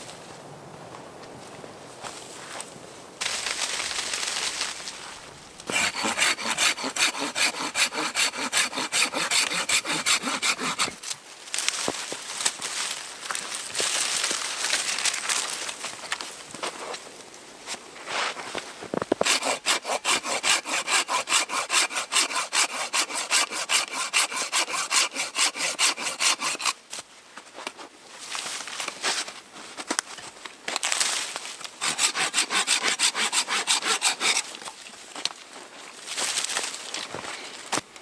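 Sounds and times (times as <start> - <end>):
hand saw cutting wood: 5.6 - 11.0, 19.2 - 26.8, 31.8 - 34.8.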